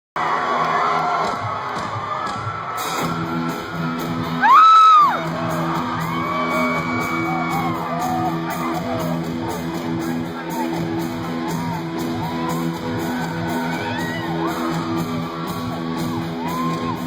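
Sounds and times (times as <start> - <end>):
crowd cheering: 0.2 - 17.0
live rock band: 2.8 - 17.0
guitar riff: 3.0 - 17.0
loud whoop from crowd: 4.4 - 5.3, 6.0 - 8.6, 16.4 - 17.0.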